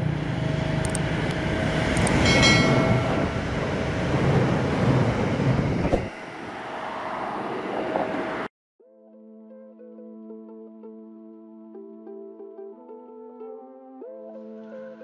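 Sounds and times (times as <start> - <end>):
train rumbling by: 0.0 - 8.5
thin rushing noise: 5.8 - 6.4.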